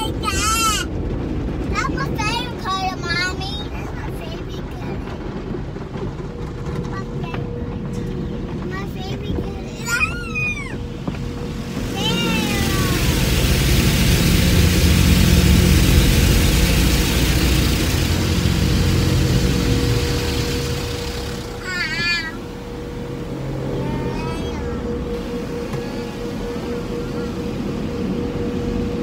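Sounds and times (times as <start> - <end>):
car wash spray with rumble: 0.0 - 29.0
child squealing: 9.7 - 10.8, 21.6 - 22.4, 23.7 - 24.9.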